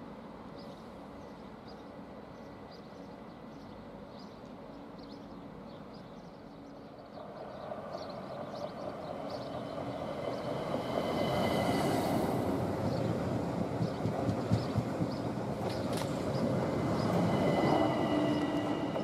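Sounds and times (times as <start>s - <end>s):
electric train passing: 6.4s - 19.0s.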